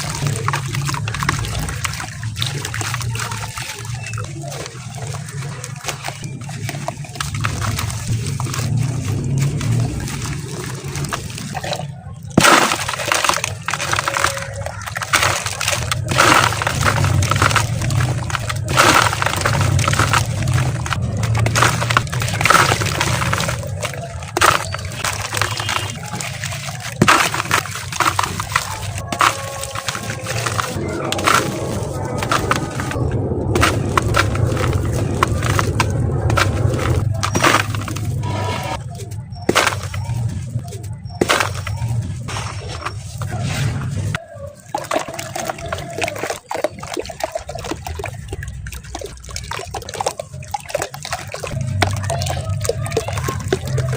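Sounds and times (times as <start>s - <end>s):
dry lumps crumbling and crunching: 0.0s - 53.9s
low rumble: 4.0s - 11.9s, 28.4s - 44.2s.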